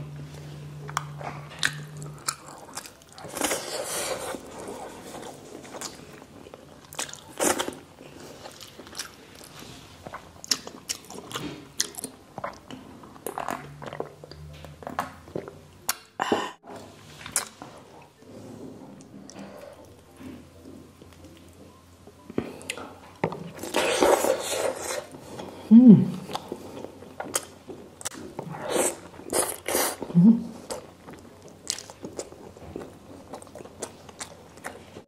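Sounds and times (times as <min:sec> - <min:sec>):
wet chewing and lip-smacking: 0:08.4 - 0:16.1.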